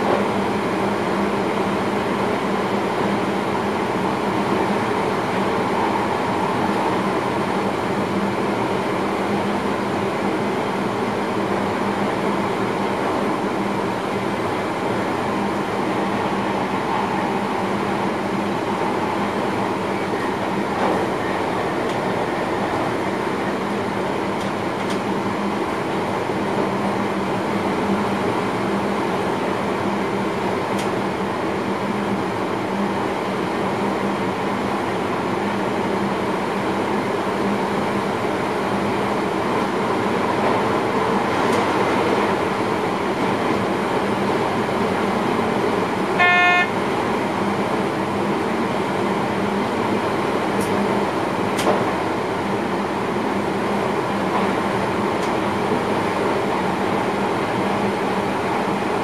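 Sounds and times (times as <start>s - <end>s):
train rumbling and rolling: 0.0s - 59.0s
short pitched tone: 46.2s - 46.8s.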